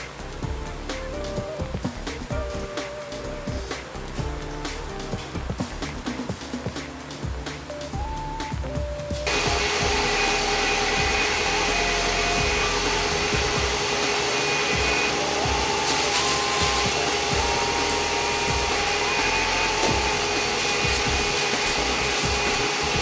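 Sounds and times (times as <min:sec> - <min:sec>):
power tool whining: 0:09.3 - 0:23.0.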